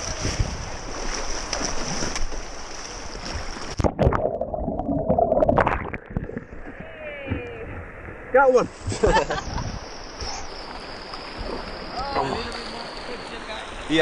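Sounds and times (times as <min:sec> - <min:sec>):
paddle splashes: 0:00.0 - 0:04.4, 0:05.3 - 0:14.0
muffled underwater gurgling: 0:03.8 - 0:08.4
rushing whitewater: 0:09.5 - 0:14.0.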